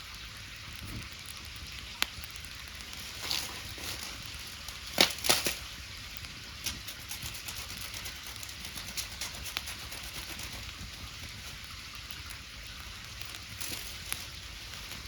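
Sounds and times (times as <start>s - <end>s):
bonfire crackling and popping: 0.0s - 15.0s.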